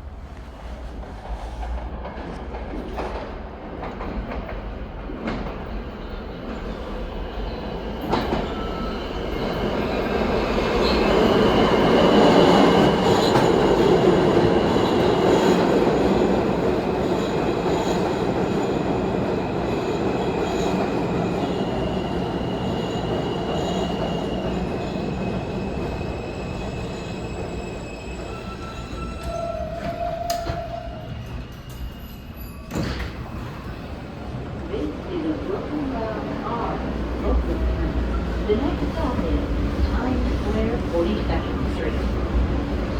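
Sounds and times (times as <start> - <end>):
subway train running on rails: 0.0 - 42.9
wheels and brakes squealing: 21.3 - 34.1.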